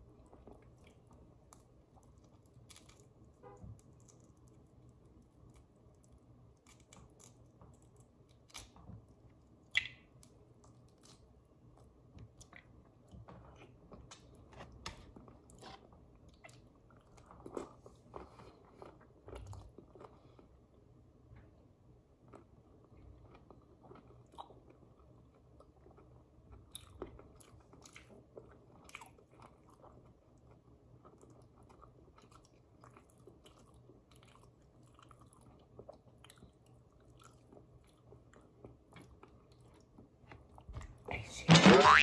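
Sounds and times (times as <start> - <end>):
chewing and mouth sounds: 0.0 - 14.4, 15.1 - 20.5, 22.2 - 41.0
small clicks and crackles: 0.3 - 9.0.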